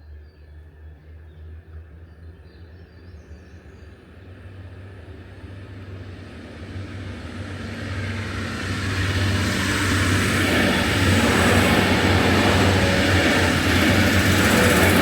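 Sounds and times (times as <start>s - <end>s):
train rushing noise: 3.9s - 15.0s.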